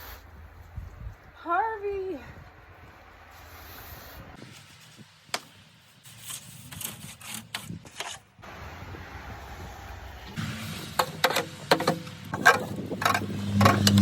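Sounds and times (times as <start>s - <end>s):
snow rustling: 2.5s - 6.8s.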